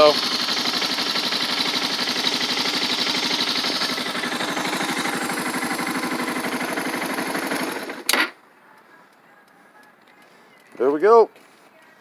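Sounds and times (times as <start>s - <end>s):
motorcycle engine idling: 0.0s - 8.1s.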